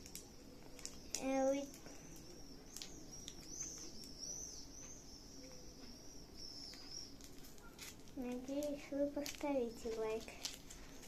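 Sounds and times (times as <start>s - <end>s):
high wavering chirping: 0.4s - 7.9s.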